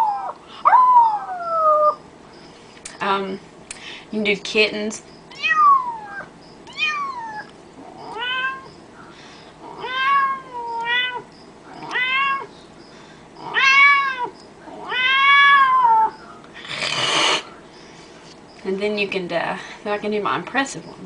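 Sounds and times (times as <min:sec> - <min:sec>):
short hissing burst: 0:16.7 - 0:17.5.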